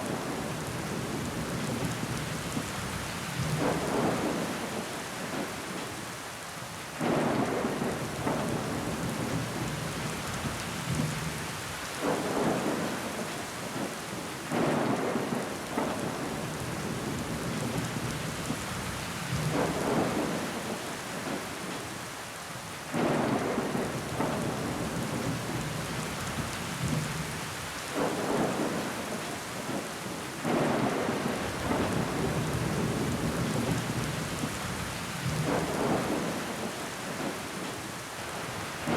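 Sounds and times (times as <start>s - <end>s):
rain on window glass: 0.0s - 22.0s, 22.9s - 38.9s.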